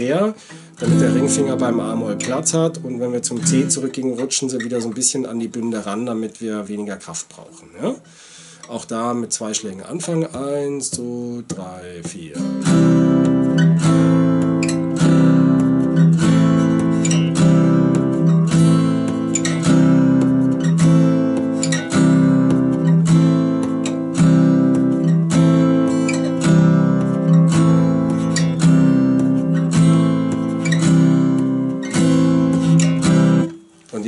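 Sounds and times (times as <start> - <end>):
acoustic guitar strumming: 0.0 - 5.8, 8.0 - 34.0.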